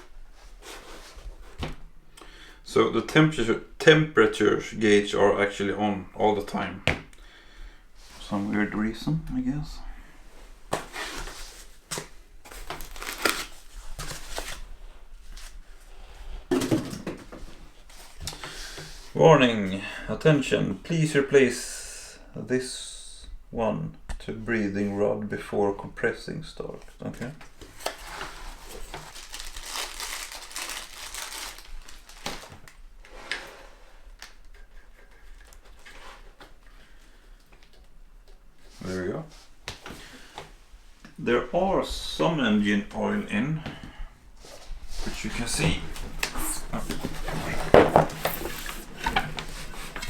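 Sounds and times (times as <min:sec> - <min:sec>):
packaging rustling and crinkling: 0:10.7 - 0:15.6, 0:27.6 - 0:33.3, 0:44.6 - 0:50.0
hands rustling: 0:44.4 - 0:50.0.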